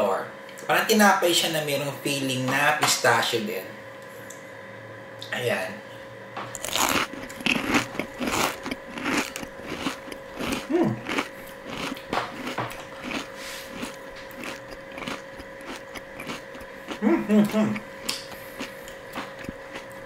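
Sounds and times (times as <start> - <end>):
wet mouth chewing: 6.6 - 20.0.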